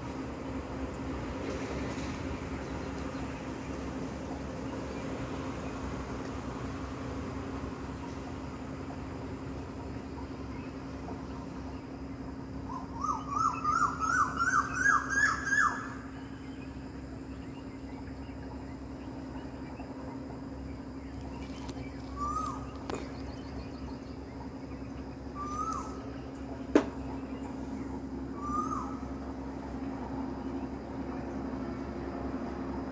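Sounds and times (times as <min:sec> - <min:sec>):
steady low hum: 0:00.0 - 0:32.9
bird calling upswept notes: 0:10.0 - 0:31.7.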